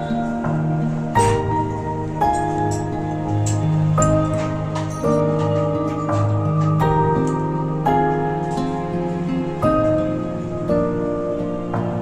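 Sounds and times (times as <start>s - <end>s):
soft new-age instrumental music: 0.0s - 12.0s.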